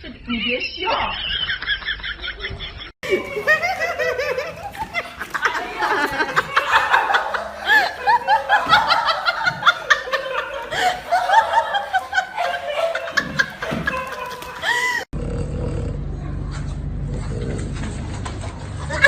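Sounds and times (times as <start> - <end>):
person giggling: 2.4 - 15.1.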